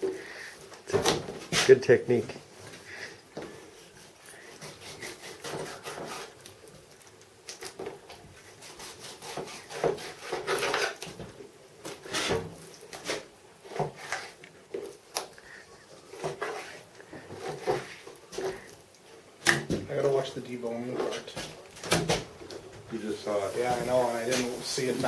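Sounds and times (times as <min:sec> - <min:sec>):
knife slicing and scraping fish: 0:03.8 - 0:11.2, 0:11.8 - 0:15.3, 0:16.1 - 0:18.8.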